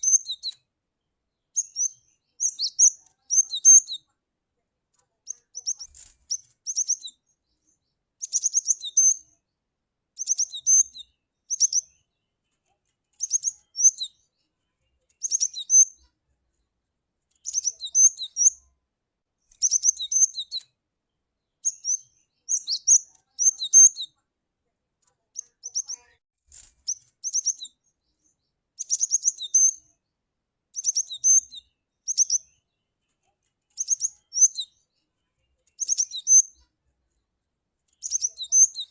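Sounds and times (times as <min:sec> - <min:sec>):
bird chirping calls: 0:00.0 - 0:00.7, 0:01.3 - 0:04.1, 0:05.2 - 0:09.4, 0:10.2 - 0:16.2, 0:17.3 - 0:18.7, 0:19.4 - 0:20.8, 0:21.4 - 0:24.2, 0:25.4 - 0:30.0, 0:30.7 - 0:36.7, 0:37.9 - 0:38.9.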